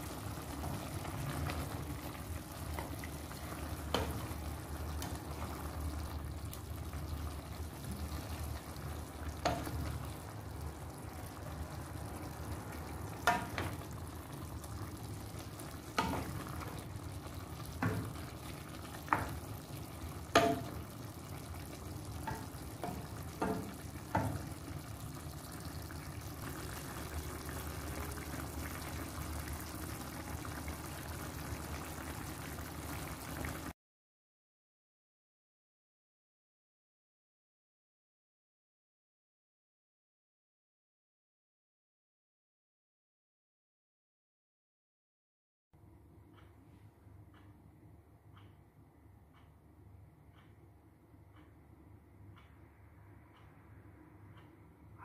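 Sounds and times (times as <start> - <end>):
food sizzling in a pot: 0.0 - 33.7
wooden spoon knocking against pot: 13.2 - 13.8, 15.9 - 16.8, 17.7 - 18.3, 18.9 - 19.4, 20.2 - 20.9, 22.1 - 24.6.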